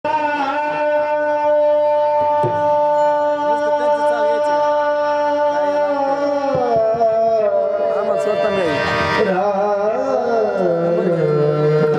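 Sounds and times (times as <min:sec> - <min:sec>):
harmonium sustained chord: 0:07.8 - 0:11.9.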